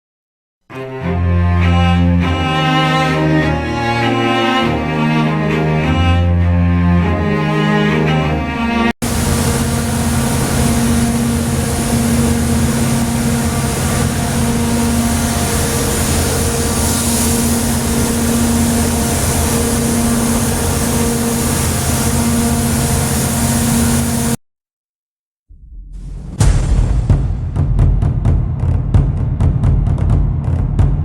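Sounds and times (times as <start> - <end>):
sawmill machinery drone: 9.0 - 24.4.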